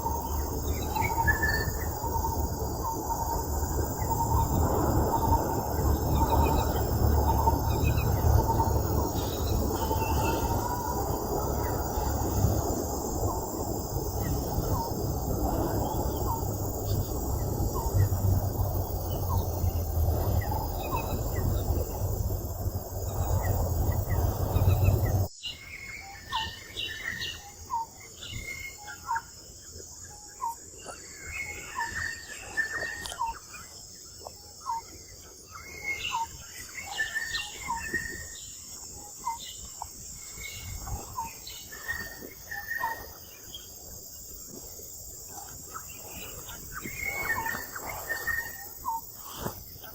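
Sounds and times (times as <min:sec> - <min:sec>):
loud low rumbling: 0:00.0 - 0:25.3
steady high insect buzz: 0:00.0 - 0:30.6.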